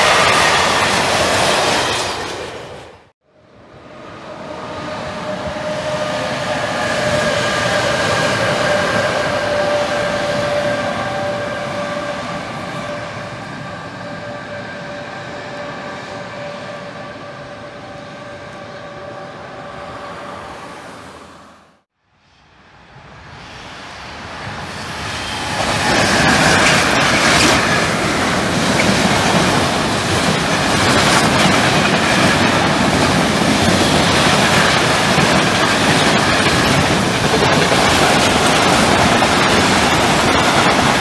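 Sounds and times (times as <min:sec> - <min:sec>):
train wheels rumbling on rails: 0:00.0 - 0:03.1, 0:03.7 - 0:20.7, 0:22.6 - 0:41.0
electric train whine: 0:00.0 - 0:41.0.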